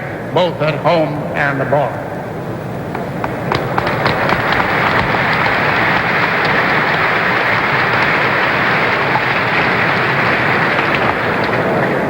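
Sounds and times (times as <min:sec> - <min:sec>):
crowd applauding: 0:02.9 - 0:12.0.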